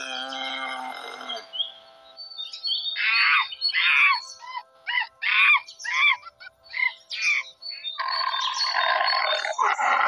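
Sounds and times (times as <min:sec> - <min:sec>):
background music: 0:00.0 - 0:10.0
harsh squawking animal calls: 0:03.0 - 0:07.4, 0:08.0 - 0:10.0.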